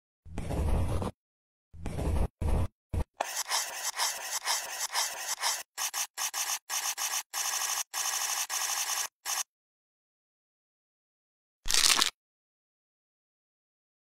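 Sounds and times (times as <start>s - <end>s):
felt-tip marker scratching on paper: 0.4s - 1.2s, 1.8s - 9.5s.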